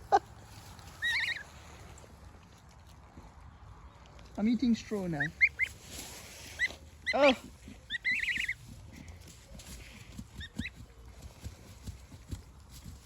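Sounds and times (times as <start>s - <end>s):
rustling in straw: 0.0s - 3.2s, 4.4s - 13.0s
chicks peeping: 1.0s - 1.5s, 6.5s - 9.6s.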